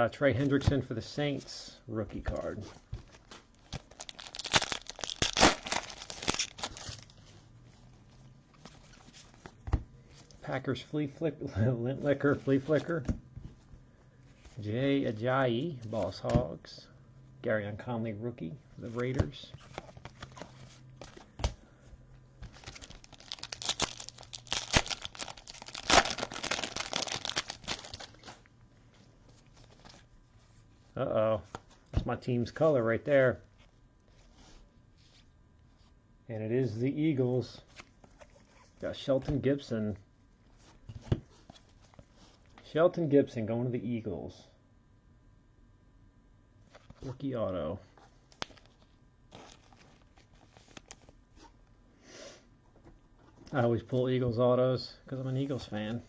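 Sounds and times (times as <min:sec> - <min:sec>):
foil wrapper crinkling and tearing: 0:03.6 - 0:07.2, 0:22.5 - 0:28.5.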